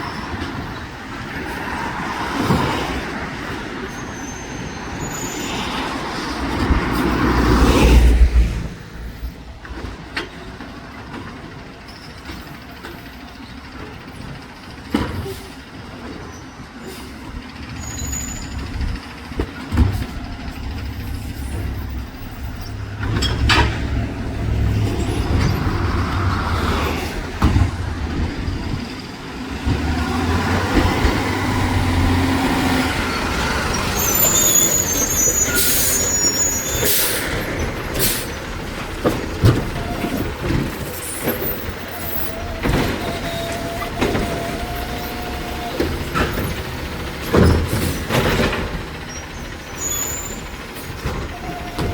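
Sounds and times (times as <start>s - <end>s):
diesel engine rumbling: 0.0s - 51.9s
high squeal: 3.8s - 6.5s, 17.7s - 19.0s, 31.3s - 38.5s, 40.9s - 46.7s, 49.0s - 51.9s
metallic bangs and clanks: 18.6s - 26.4s.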